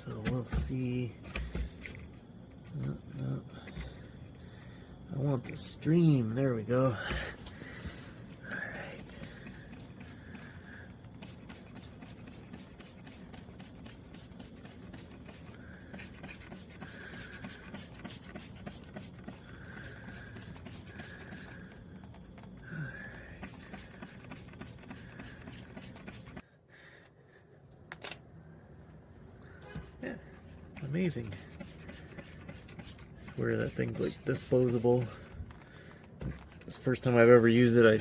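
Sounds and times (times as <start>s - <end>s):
spray bottle trigger pumping: 8.9s - 21.7s, 23.4s - 26.4s, 30.8s - 35.3s.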